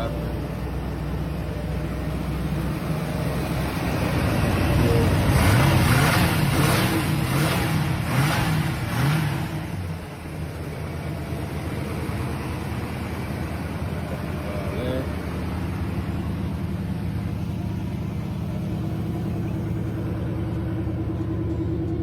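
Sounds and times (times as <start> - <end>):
engine idling and revving: 0.0 - 22.0.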